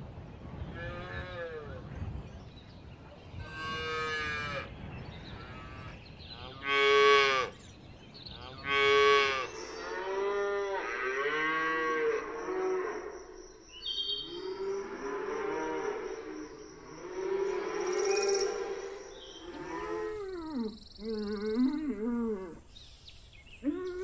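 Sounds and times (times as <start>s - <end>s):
cows mooing: 8.4s - 13.1s, 14.2s - 20.4s.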